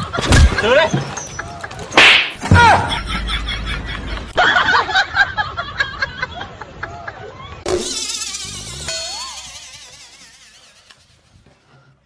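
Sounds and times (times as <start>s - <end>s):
sharp slap hits: 2.0s - 2.4s.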